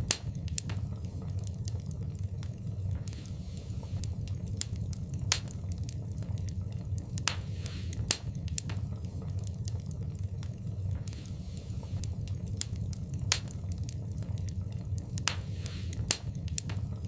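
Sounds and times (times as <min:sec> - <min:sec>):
fire hiss: 0:00.0 - 0:17.0
wood fire crackling and popping: 0:00.0 - 0:17.0.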